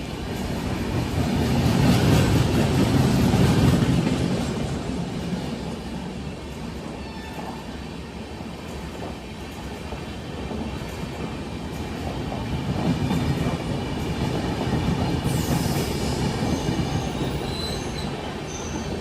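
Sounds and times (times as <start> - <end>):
train wheels rumbling: 0.0 - 19.0
high-pitched wheel squeals: 15.6 - 18.9.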